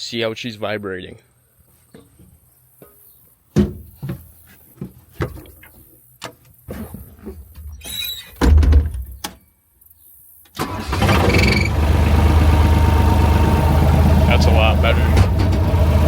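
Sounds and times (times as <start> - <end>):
diesel engine starting and running: 10.6 - 16.0.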